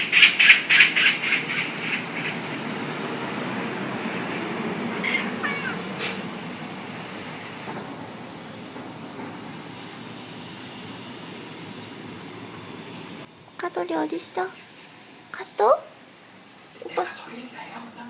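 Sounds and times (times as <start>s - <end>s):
cat chirping meow: 4.2s - 6.4s.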